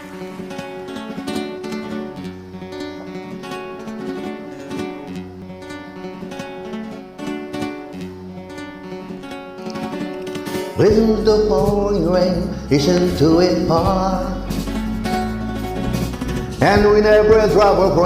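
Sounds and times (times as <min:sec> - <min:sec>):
acoustic guitar strumming chords: 0:00.0 - 0:18.0
repeating bass line: 0:10.8 - 0:18.0.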